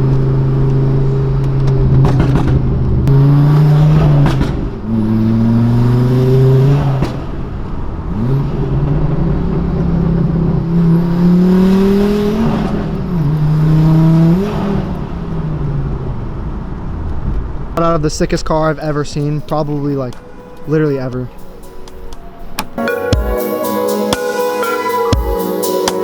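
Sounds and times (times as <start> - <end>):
car engine accelerating hard: 0.0 - 18.1.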